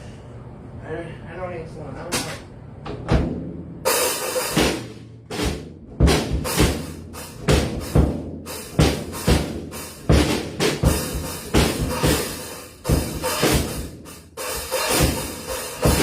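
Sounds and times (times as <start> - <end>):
bass drum hits: 2.9 - 14.0
snare drum hits: 3.2 - 13.9.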